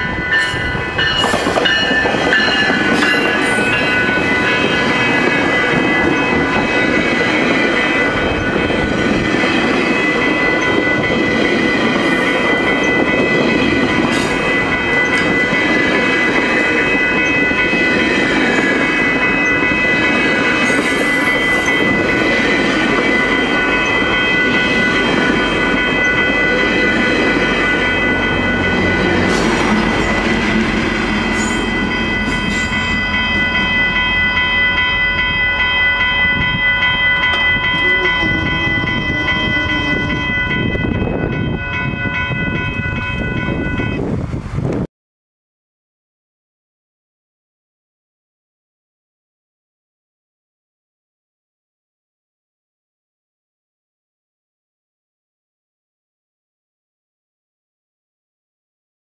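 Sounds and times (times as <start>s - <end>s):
high-pitched ringing: 0.0s - 44.1s
train wheels rumbling on rails: 0.0s - 44.9s.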